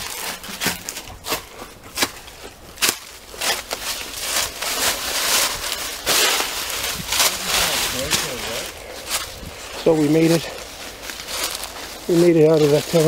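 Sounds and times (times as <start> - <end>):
footsteps crunching on debris: 0.0 - 13.0.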